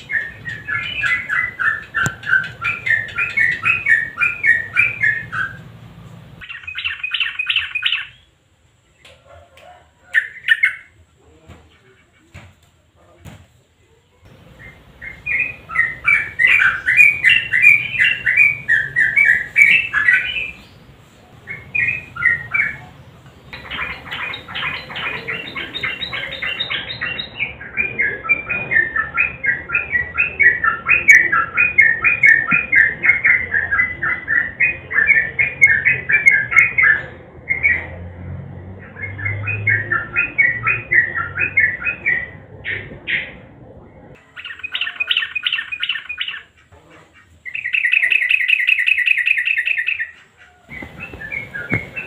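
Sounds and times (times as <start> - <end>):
bird singing rapid chattering notes: 0.0 - 8.4, 14.3 - 37.9, 44.3 - 52.0.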